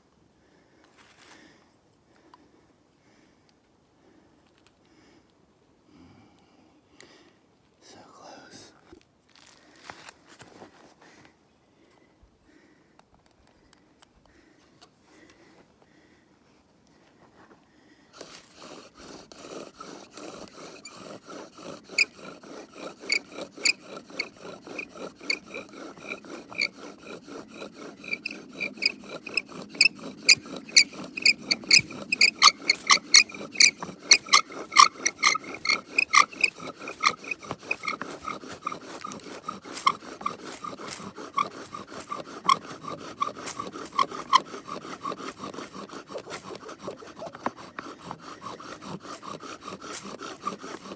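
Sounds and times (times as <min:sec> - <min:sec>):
hand tool rasping on wood: 0:18.2 - 0:50.9.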